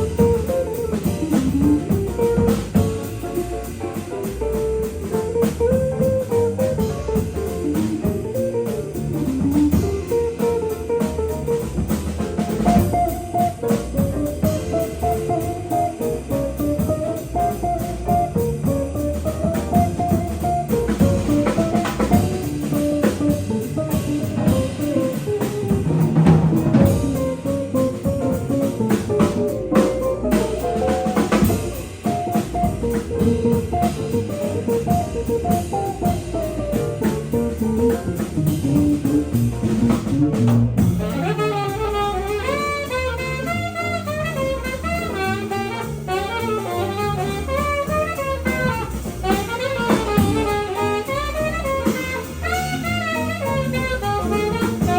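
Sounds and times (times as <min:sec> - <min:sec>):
drum kit: 0:00.0 - 0:54.9
jazz guitar line: 0:00.0 - 0:54.9
piano: 0:00.0 - 0:54.9
walking bass: 0:00.0 - 0:54.9
alto saxophone: 0:40.9 - 0:54.9.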